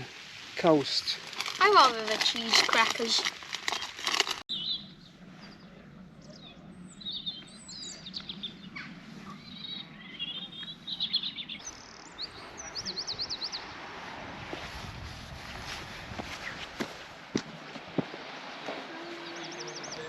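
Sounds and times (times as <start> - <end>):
small birds singing: 3.7 - 13.8, 18.9 - 20.0.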